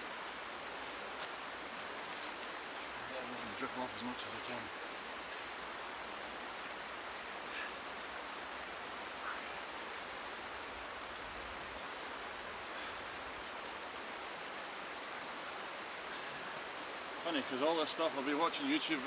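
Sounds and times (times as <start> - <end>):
faint rustles: 0.0 - 4.6, 12.5 - 13.8
river flowing: 0.0 - 19.0.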